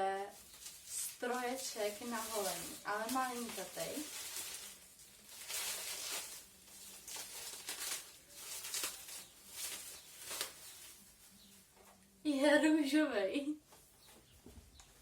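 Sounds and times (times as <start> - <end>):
packaging rustling: 0.3 - 11.6.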